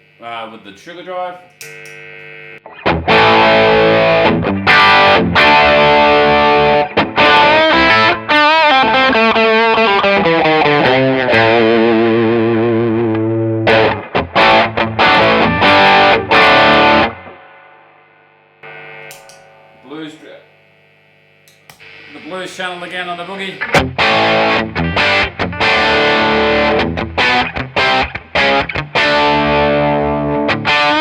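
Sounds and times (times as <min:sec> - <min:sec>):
amp hum: 0:00.0 - 0:31.0
overdriven electric guitar: 0:01.5 - 0:22.2, 0:23.2 - 0:31.0.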